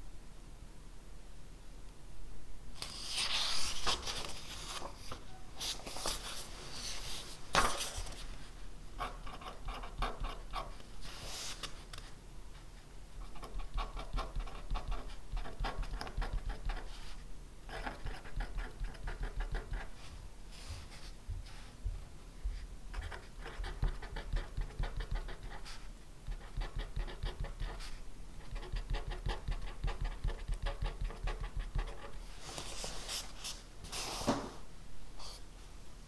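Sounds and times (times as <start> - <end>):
pen scratching on paper: 9.0 - 10.8, 13.3 - 17.1, 23.0 - 32.2.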